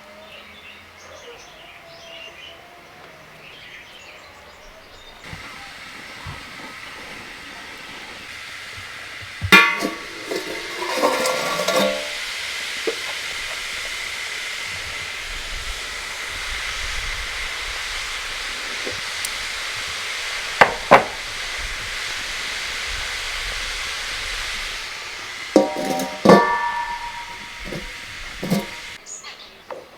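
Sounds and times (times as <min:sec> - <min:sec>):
food cooking hiss: 0:03.3 - 0:29.4
metal utensils clattering: 0:09.4 - 0:12.3, 0:25.6 - 0:29.0.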